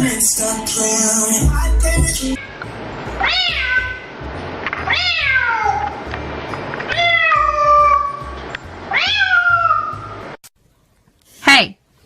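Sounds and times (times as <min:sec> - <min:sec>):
background music with low beat: 0:00.0 - 0:03.3
cat meowing: 0:03.2 - 0:04.1, 0:04.8 - 0:06.0, 0:06.9 - 0:10.2.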